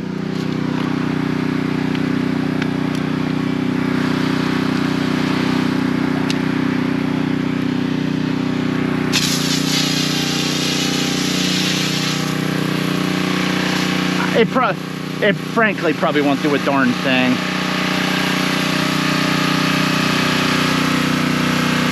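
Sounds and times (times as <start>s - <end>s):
small gas engine running: 0.0s - 21.9s
water spray hissing: 9.1s - 14.6s.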